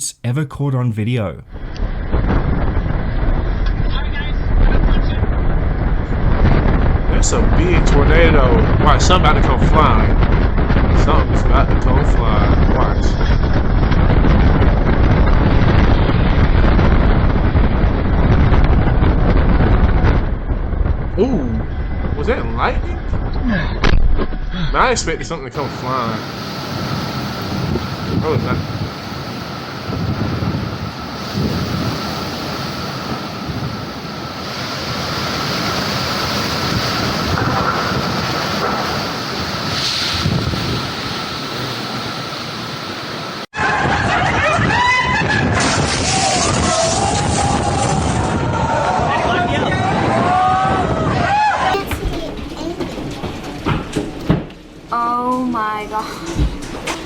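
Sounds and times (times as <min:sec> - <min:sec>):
loud wind blasting microphone: 0:01.5 - 0:57.0.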